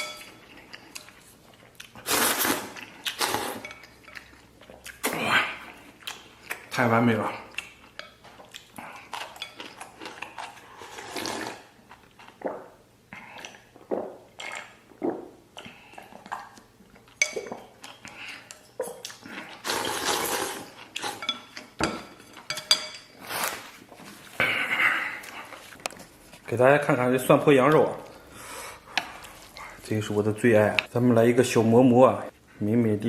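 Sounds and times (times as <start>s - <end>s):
utensils clinking on bowl: 0.0s - 0.6s, 9.1s - 10.5s, 19.8s - 23.2s
slurping noodles: 2.0s - 3.6s, 10.7s - 11.7s, 19.4s - 21.2s.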